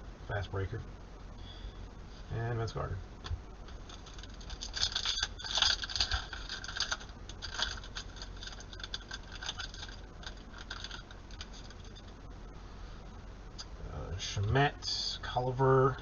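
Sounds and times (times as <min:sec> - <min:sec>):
cards flipping and rustling: 0:03.6 - 0:12.1.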